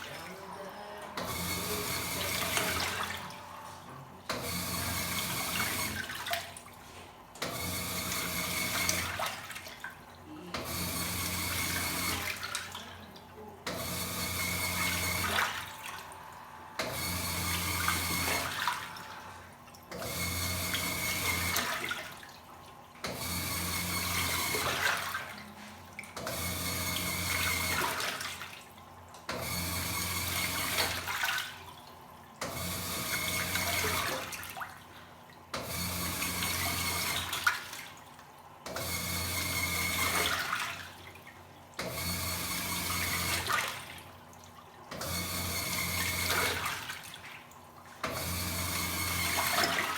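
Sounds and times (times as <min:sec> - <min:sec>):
water sloshing: 0:00.0 - 0:04.4, 0:05.5 - 0:07.4, 0:08.9 - 0:10.7, 0:12.2 - 0:13.8, 0:15.2 - 0:16.9, 0:18.2 - 0:20.0, 0:21.5 - 0:23.1, 0:24.5 - 0:26.3, 0:30.8 - 0:32.5, 0:37.2 - 0:38.7, 0:46.3 - 0:48.2, 0:49.4 - 0:49.9
washing machine motor hum: 0:00.0 - 0:49.9.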